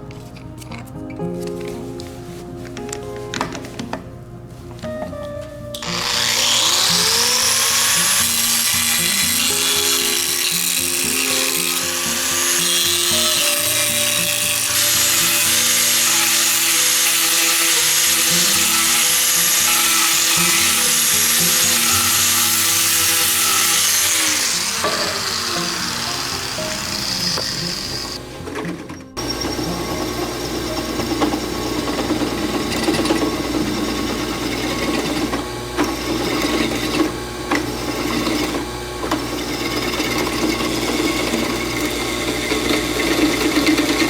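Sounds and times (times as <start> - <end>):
background music: 0.0 - 35.4
power tool motor whine: 5.7 - 44.0.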